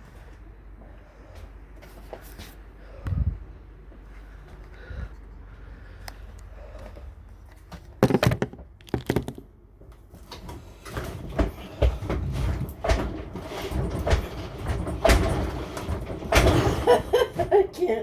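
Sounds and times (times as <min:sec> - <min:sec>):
refrigerator on dolly knocking: 0:08.0 - 0:09.5
thumps and rattling: 0:08.0 - 0:09.5.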